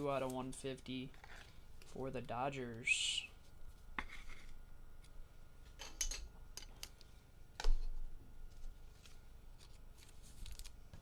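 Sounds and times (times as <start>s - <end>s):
card packs crinkling and clicking: 9.0s - 11.0s.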